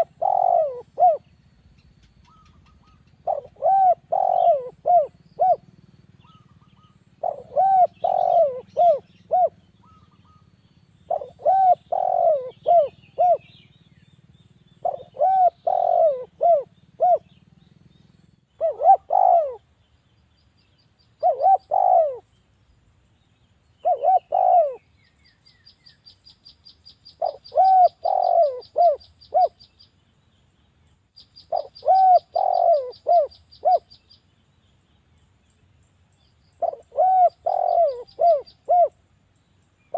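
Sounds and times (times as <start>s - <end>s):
dove cooing: 0.0s - 1.4s, 2.1s - 10.5s, 11.1s - 13.8s, 14.8s - 17.4s, 18.6s - 19.7s, 21.2s - 22.3s, 23.8s - 24.9s, 27.2s - 29.6s, 31.5s - 34.0s, 36.6s - 39.0s.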